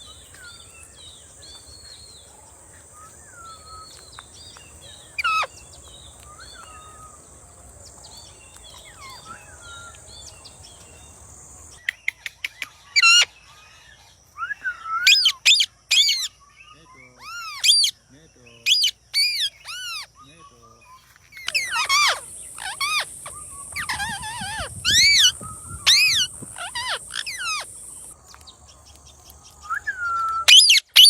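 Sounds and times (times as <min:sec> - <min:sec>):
parrot chirps and whistles: 0:14.5 - 0:16.3, 0:17.2 - 0:17.9, 0:21.4 - 0:28.2, 0:29.6 - 0:31.0
parrot screech: 0:21.4 - 0:27.7
parrot call sweeping down: 0:21.5 - 0:27.7.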